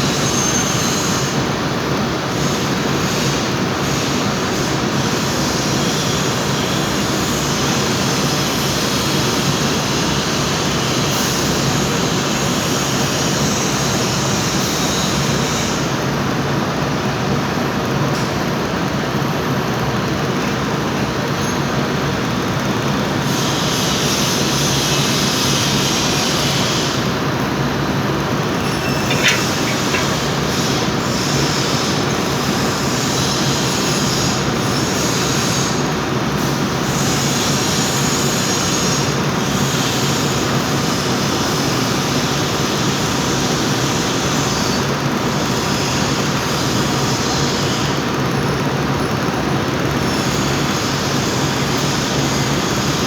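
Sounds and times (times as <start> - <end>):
workshop machine hum: 28.4 - 33.0.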